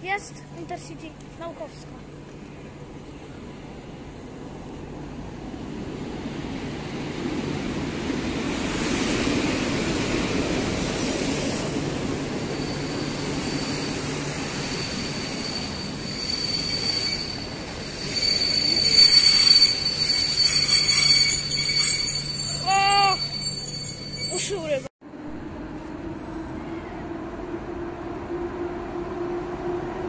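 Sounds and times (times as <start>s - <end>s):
train wheels rumbling on rail: 0.0s - 22.6s
high brake squeal: 12.5s - 24.8s.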